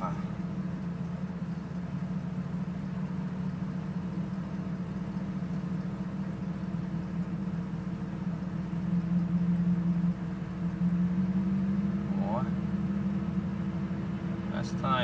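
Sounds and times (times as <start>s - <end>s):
car engine idling roughly: 0.0s - 10.7s.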